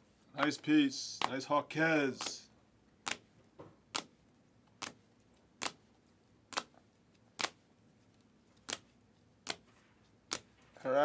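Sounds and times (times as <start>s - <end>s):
trading cards clicking: 2.2s - 2.4s.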